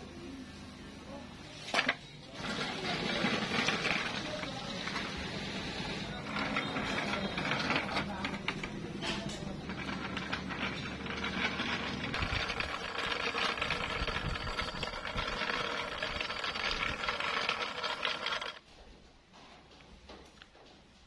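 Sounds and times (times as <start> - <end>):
wooden cart wheels rattling: 9.6 - 18.6.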